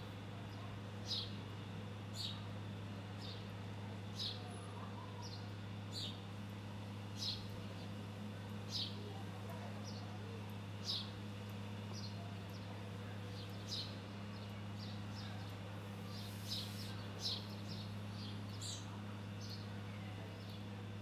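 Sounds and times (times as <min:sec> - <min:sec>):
birds chirping: 0:07.2 - 0:08.0, 0:08.7 - 0:09.0, 0:10.8 - 0:11.2, 0:11.9 - 0:20.7.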